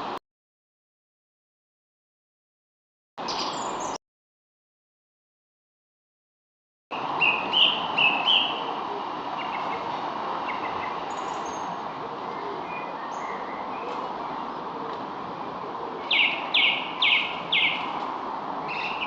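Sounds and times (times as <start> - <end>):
birds chirping: 3.2 - 4.0, 7.0 - 18.0, 18.6 - 19.0
steady background hiss: 7.0 - 19.0.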